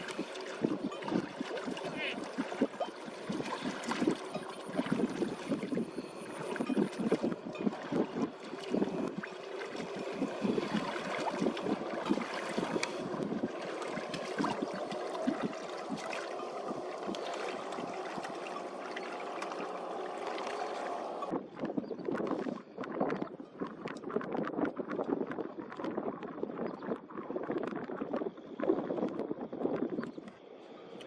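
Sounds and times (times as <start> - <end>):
water splashing and sloshing: 0.0 - 31.0.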